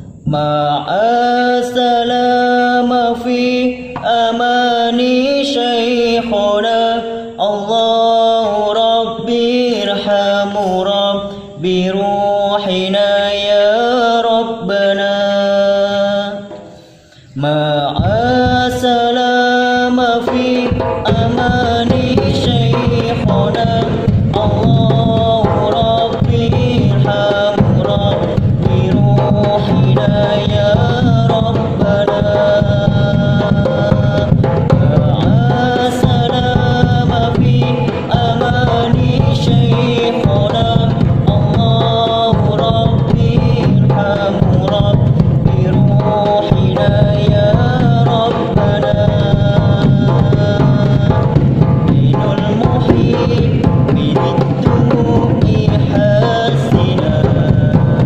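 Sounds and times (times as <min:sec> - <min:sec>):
frame drums and darbuka playing: 0:18.0 - 0:58.0.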